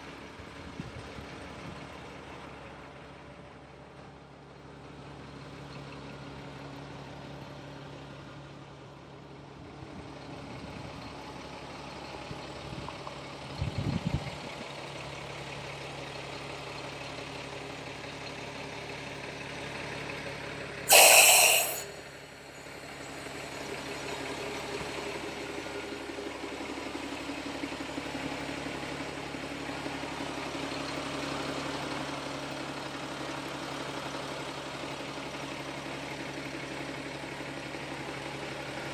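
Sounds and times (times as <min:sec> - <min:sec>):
burst of hissing: 0:20.9 - 0:22.1.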